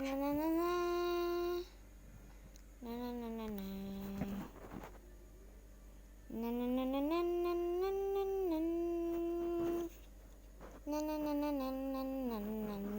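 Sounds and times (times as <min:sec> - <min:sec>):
person humming a slow tune: 0:00.0 - 0:01.8, 0:02.8 - 0:04.5, 0:06.3 - 0:10.0, 0:10.7 - 0:12.9.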